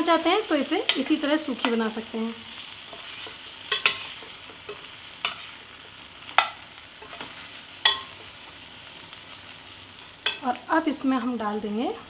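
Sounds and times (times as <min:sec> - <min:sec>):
potato slices sizzling in a pan: 0:00.0 - 0:12.0
utensil striking a pan: 0:02.9 - 0:08.3, 0:10.2 - 0:10.4.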